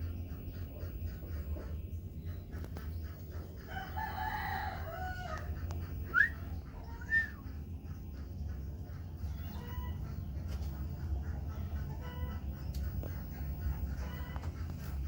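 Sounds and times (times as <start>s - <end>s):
steady low hum: 0.0s - 15.0s
rooster crowing: 3.7s - 6.3s.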